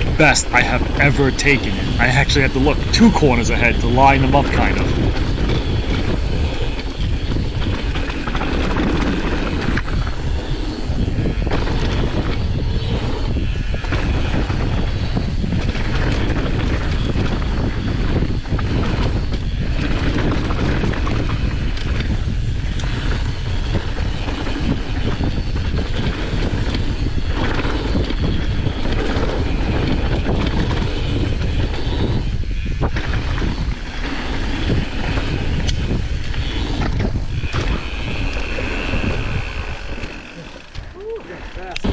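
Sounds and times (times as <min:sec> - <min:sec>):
wind on microphone: 0:00.0 - 0:41.9
bike rattling over bumps: 0:04.4 - 0:13.4, 0:32.9 - 0:41.9
bike tyres on dirt: 0:34.0 - 0:41.9.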